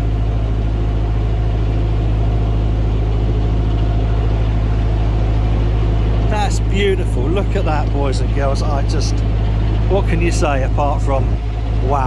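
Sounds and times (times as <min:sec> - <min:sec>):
diesel boat engine running: 0:00.0 - 0:12.0.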